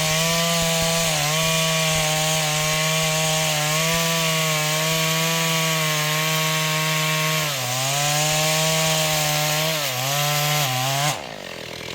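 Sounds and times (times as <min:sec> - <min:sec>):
chainsaw cutting tree: 0:00.0 - 0:11.9.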